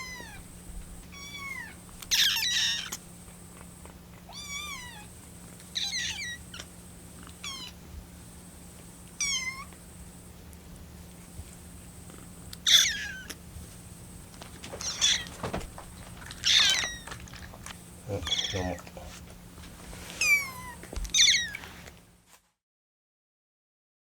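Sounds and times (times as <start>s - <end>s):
kittens mewing: 0.0s - 7.9s, 9.1s - 9.8s, 12.0s - 13.4s, 14.6s - 19.0s, 20.2s - 21.8s.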